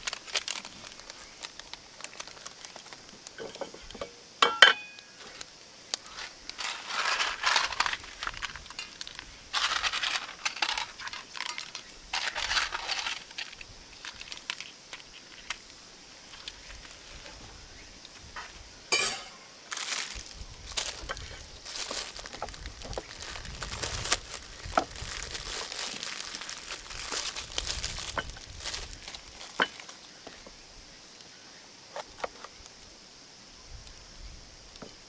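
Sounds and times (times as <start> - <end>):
metallic clink with ring: 4.4 - 5.1
scraping or rustling: 6.0 - 15.6, 18.3 - 30.0.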